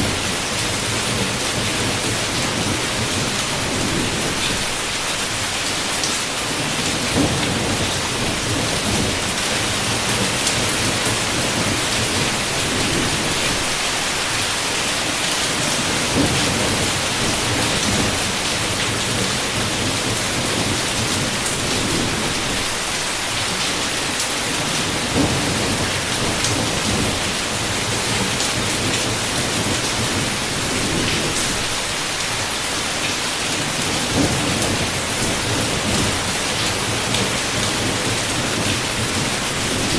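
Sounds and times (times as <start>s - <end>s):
heavy rain on a window: 0.0s - 39.9s
low thunder rumbling: 6.5s - 13.9s, 24.8s - 31.9s.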